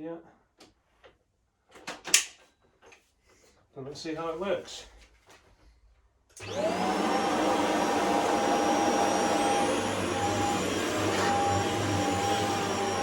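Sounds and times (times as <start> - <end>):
stick vacuum whining: 6.4 - 13.0.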